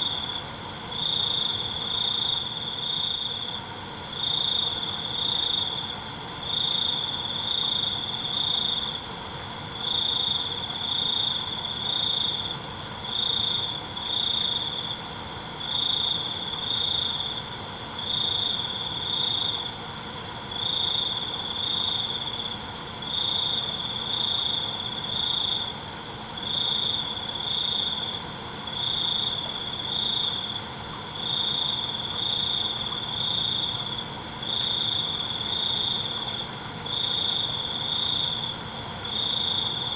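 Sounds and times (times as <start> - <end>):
high-pitched insect trilling: 0.0 - 5.8
loud high insect chirping: 0.0 - 8.0.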